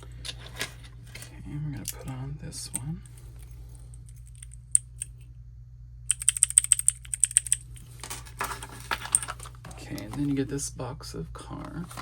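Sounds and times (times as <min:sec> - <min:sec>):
key switch clicking: 0:06.1 - 0:07.6
handling rustles: 0:07.7 - 0:10.4, 0:11.6 - 0:12.0.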